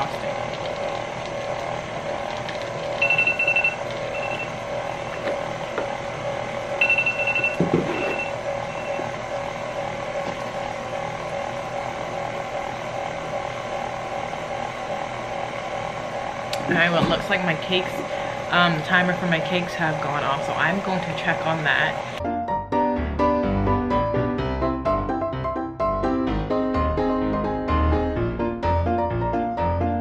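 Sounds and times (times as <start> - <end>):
stand mixer running: 0.0 - 22.2
kitchen timer beeping: 3.0 - 5.3, 6.8 - 9.0.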